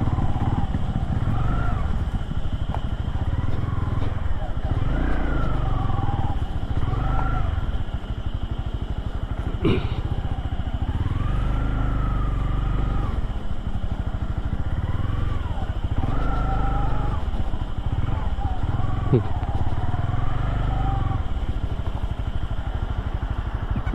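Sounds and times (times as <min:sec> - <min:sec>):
motorcycle engine idling: 0:00.0 - 0:23.9.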